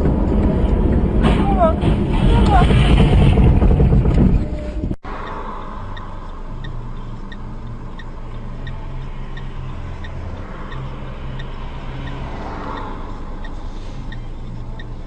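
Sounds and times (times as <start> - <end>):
car engine and road noise: 0.0 - 15.0
turn signal ticking: 3.8 - 15.0.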